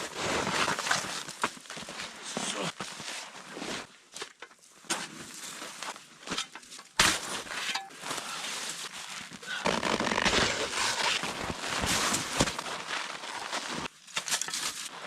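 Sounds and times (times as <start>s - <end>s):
sharp shovel strike: 7.0s - 8.0s
snow shovel scraping ice: 7.0s - 15.0s.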